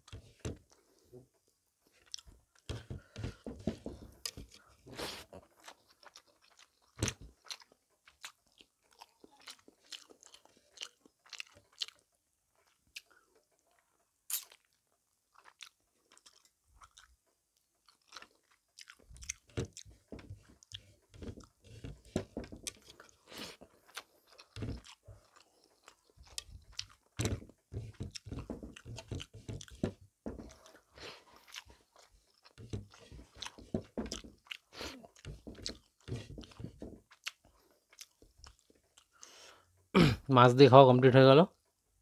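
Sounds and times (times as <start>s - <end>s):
person chewing food: 0.0s - 39.7s.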